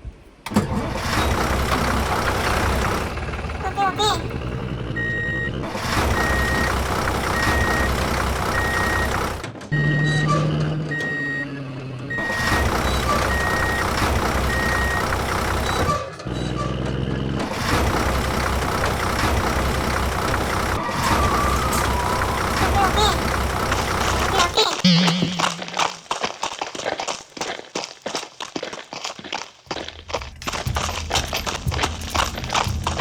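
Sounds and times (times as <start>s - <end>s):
engine running: 0.4s - 26.3s, 29.7s - 33.0s
reversing alarm beeping: 4.2s - 16.0s, 19.5s - 26.1s.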